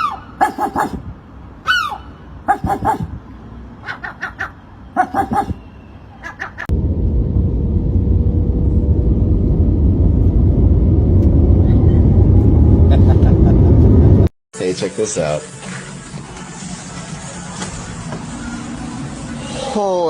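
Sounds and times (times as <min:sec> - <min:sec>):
gull calling: 0:00.0 - 0:01.0, 0:01.7 - 0:03.2, 0:03.9 - 0:05.6
steady low rumble: 0:06.7 - 0:14.3.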